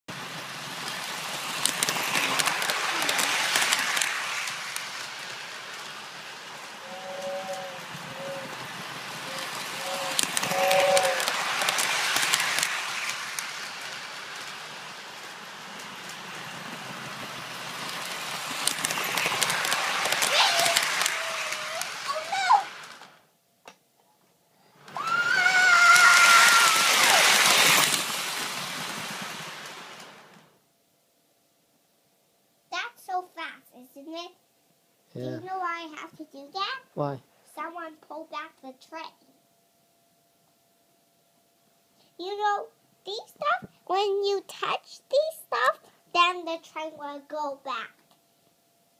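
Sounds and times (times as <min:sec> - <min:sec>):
steam-like hiss: 0:00.1 - 0:23.1, 0:24.6 - 0:30.5
toy electric train rattling: 0:00.1 - 0:23.2, 0:24.7 - 0:30.5
sharp clicks of train: 0:00.2 - 0:23.8, 0:24.8 - 0:30.5
toy train whistle tone: 0:06.8 - 0:11.4.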